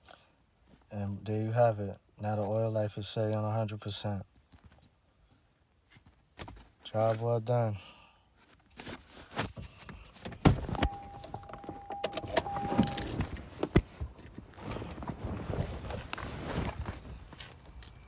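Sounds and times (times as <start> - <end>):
clicks and knocks handling things: 8.7 - 18.0
electronic beep: 10.7 - 13.2.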